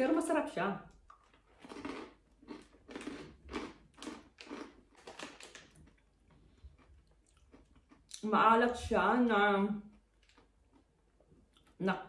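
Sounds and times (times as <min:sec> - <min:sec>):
person chewing crunchy snack: 0:01.0 - 0:08.2, 0:09.9 - 0:11.7.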